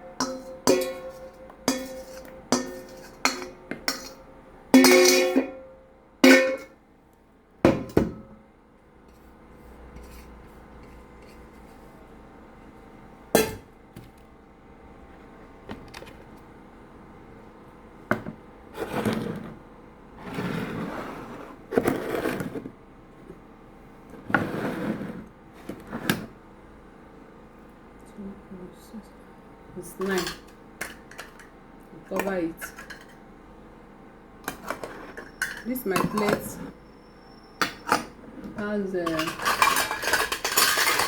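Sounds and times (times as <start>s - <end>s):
plates clinking together: 0.0s - 4.2s, 4.8s - 5.6s, 6.2s - 6.7s
dishes scraping: 0.0s - 5.6s, 34.5s - 36.8s, 37.6s - 41.0s.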